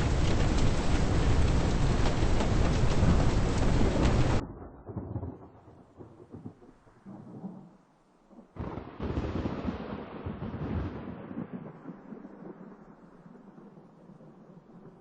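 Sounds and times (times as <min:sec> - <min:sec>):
muffled rumbling: 0:00.0 - 0:04.7
heavy rain: 0:00.0 - 0:06.8
wind: 0:00.0 - 0:15.0.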